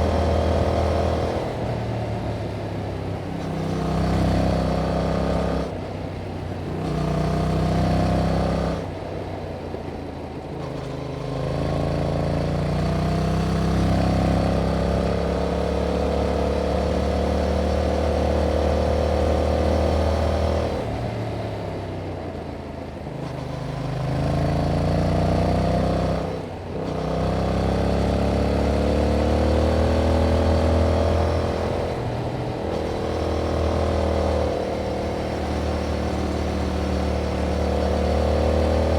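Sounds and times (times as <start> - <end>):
motorcycle engine revving: 0.0 - 5.8, 23.1 - 38.9.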